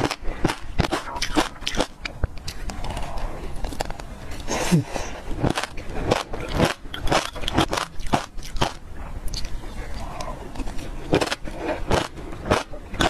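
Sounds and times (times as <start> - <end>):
seeds being chewed and crunched: 0.0 - 13.0.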